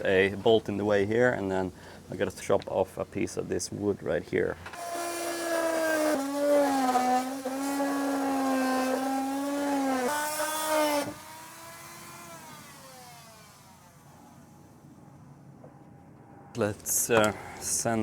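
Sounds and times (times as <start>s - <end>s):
power tool motor cutting: 4.7s - 14.8s.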